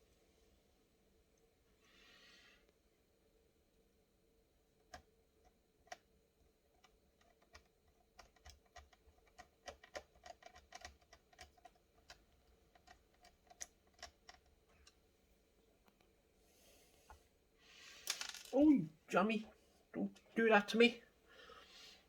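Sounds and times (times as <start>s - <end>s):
small screws and plastic parts clicking: 4.8s - 15.0s.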